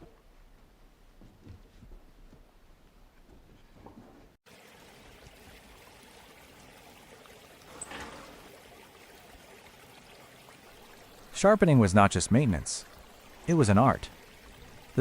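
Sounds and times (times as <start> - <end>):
water running: 4.5 - 15.0.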